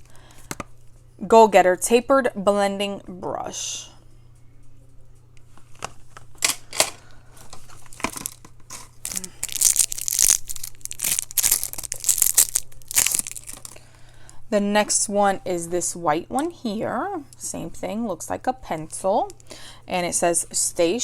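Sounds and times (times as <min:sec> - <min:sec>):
cardboard boxes tearing and crinkling: 0:07.7 - 0:13.8.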